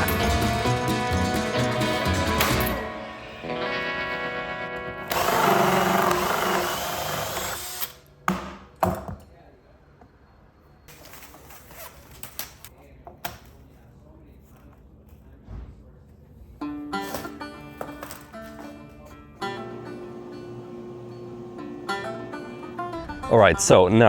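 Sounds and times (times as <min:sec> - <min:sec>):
power tool whine: 0:05.0 - 0:08.0, 0:19.6 - 0:23.2.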